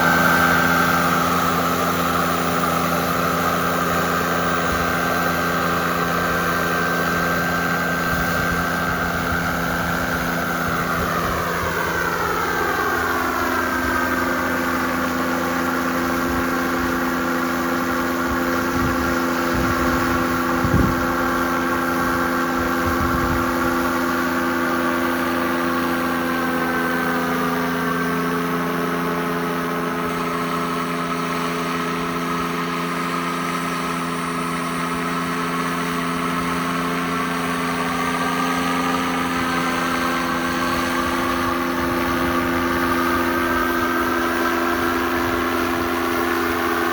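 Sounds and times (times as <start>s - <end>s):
jet turbine whine: 0.0s - 46.9s
steady low hum: 0.0s - 46.9s.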